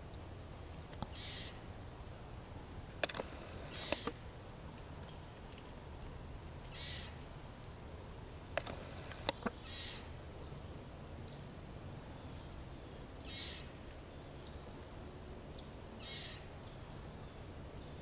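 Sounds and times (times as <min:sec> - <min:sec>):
bird harsh high call: 0:01.1 - 0:01.6, 0:06.7 - 0:07.2, 0:09.6 - 0:10.1, 0:13.2 - 0:13.8, 0:16.0 - 0:16.5
faint high bird chirps: 0:01.1 - 0:01.6, 0:06.7 - 0:07.2, 0:08.8 - 0:10.7, 0:12.1 - 0:14.7, 0:15.5 - 0:18.0
sharp clicks: 0:03.0 - 0:04.2, 0:08.6 - 0:09.6.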